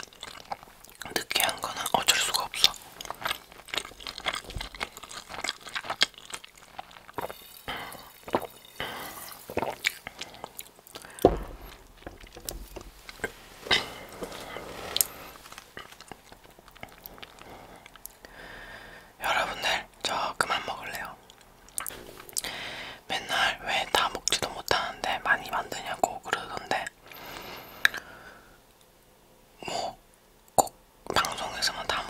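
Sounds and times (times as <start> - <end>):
wet mouth clicks and smacks: 0.0 - 13.4, 15.4 - 18.3, 21.2 - 22.5, 27.8 - 28.1
bread being chewed: 0.0 - 18.4.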